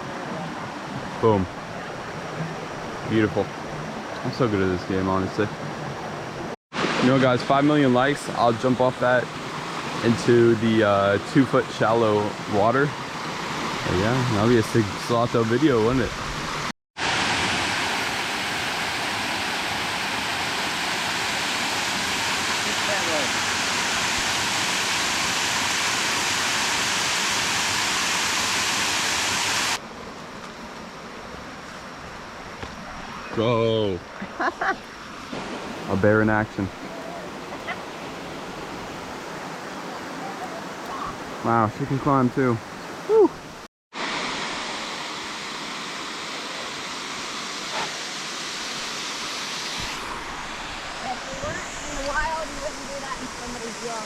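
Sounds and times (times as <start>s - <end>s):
waterfall rushing: 0.0s - 29.8s, 35.1s - 54.0s.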